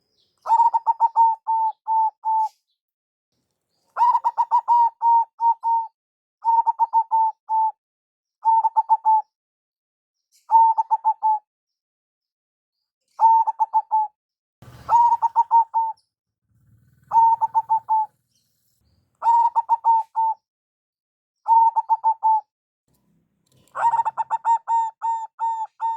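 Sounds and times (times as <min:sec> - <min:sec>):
dove cooing: 0:00.4 - 0:02.6, 0:04.0 - 0:07.7, 0:08.4 - 0:09.2, 0:10.5 - 0:11.4, 0:13.2 - 0:20.4, 0:21.5 - 0:22.4, 0:23.5 - 0:25.9.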